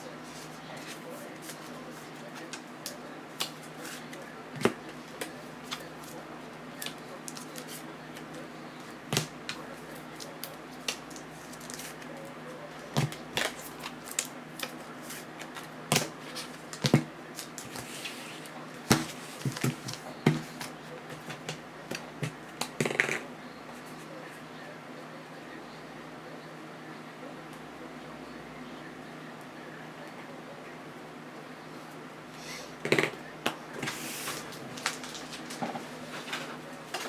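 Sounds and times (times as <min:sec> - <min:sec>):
cardboard and plastic rustling: 0:12.8 - 0:22.4, 0:33.8 - 0:37.0.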